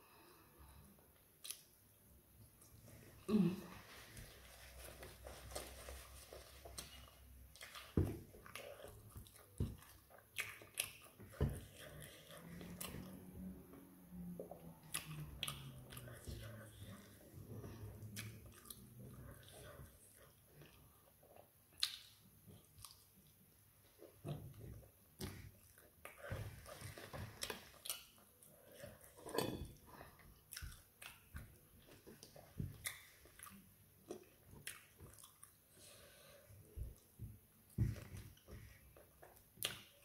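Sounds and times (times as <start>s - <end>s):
person chewing food: 1.4s - 3.0s, 4.1s - 40.0s
mouth clicks and smacks: 6.8s - 13.1s, 21.7s - 23.2s, 39.2s - 40.0s.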